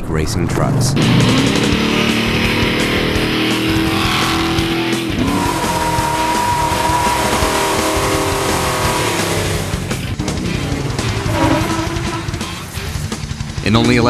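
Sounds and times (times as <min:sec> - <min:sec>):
rock guitar music: 0:01.0 - 0:13.9
truck engine running hard: 0:01.0 - 0:14.0
tyre squeal: 0:05.2 - 0:09.3, 0:10.2 - 0:13.2.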